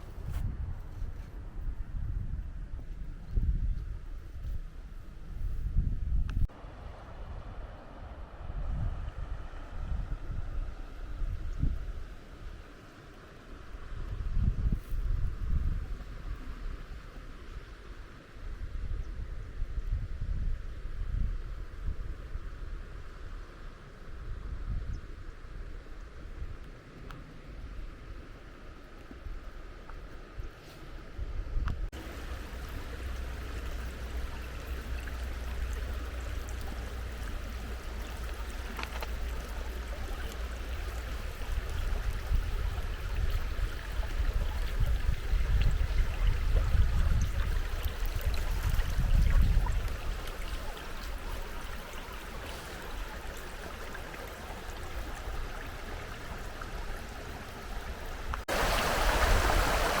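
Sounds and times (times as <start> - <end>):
wind buffeting microphone: 0.0 - 12.6, 13.6 - 23.4, 30.4 - 60.0
river rushing over stones: 32.0 - 60.0.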